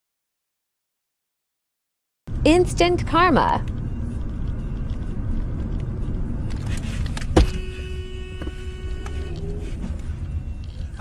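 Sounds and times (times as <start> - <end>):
vehicle road rumble: 2.3 - 11.0
sharp bang of car collision: 7.3 - 8.6.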